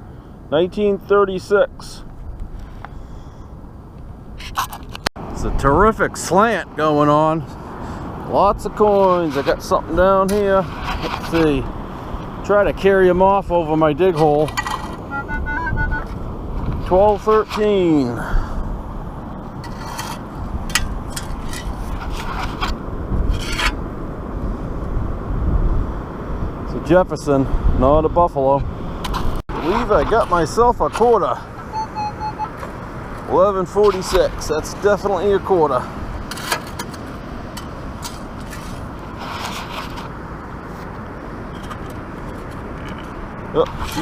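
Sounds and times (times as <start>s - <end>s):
low wind rumble: 0.0s - 44.0s
sand scoop scraping wet sand: 8.6s - 11.7s, 13.6s - 15.0s, 16.7s - 18.2s, 19.6s - 20.3s, 21.2s - 23.8s, 29.1s - 31.4s, 33.3s - 36.5s, 38.4s - 40.9s
sand scoop digging through stones: 8.7s - 11.6s, 16.8s - 18.2s, 29.5s - 31.4s, 38.4s - 40.2s.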